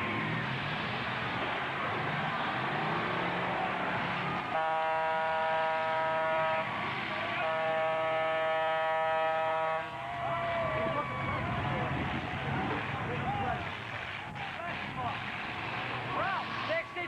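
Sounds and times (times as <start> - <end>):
horn blasts: 4.4 - 10.0.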